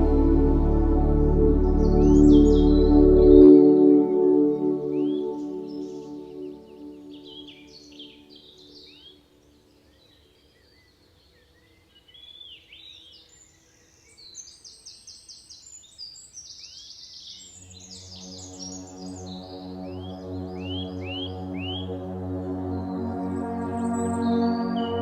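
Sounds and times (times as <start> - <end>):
soft ambient music: 0.0 - 10.1, 17.4 - 25.0
birds chirping and trilling: 0.0 - 25.0.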